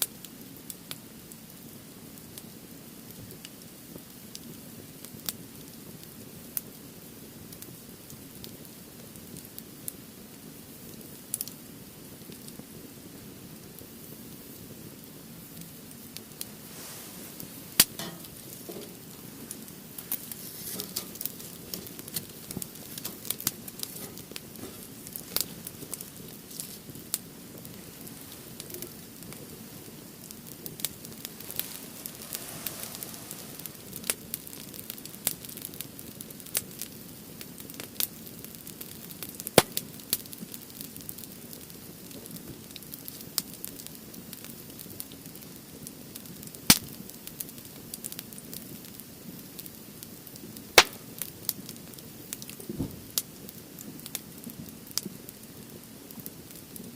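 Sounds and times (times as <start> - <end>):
firewood crackling and popping: 0.0 - 56.9.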